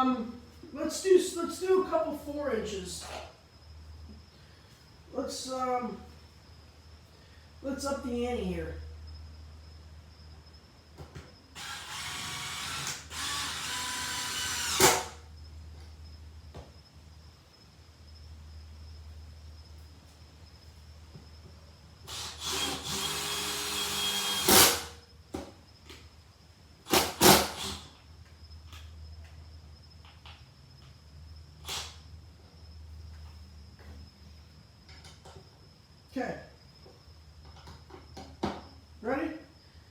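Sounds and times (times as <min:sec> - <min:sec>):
steady low hum: 0:00.0 - 0:39.9
cordless impact driver running: 0:11.6 - 0:15.2, 0:22.1 - 0:25.0.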